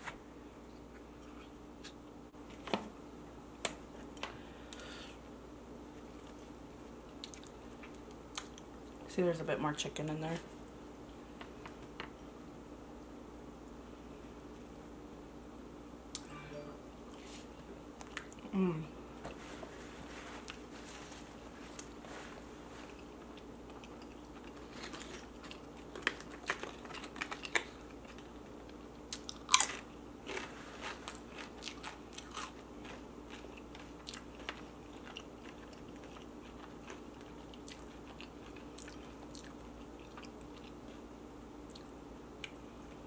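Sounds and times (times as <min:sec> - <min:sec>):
faint steady hum: 0:00.0 - 0:43.0
crunchy chewing: 0:20.3 - 0:42.7.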